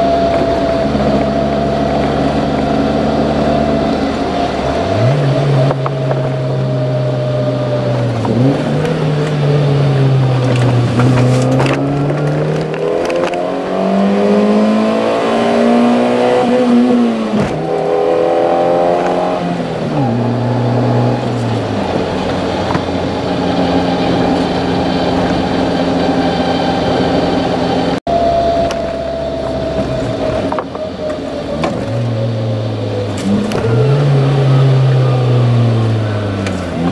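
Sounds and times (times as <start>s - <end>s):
car engine accelerating through gears: 0.0s - 36.9s.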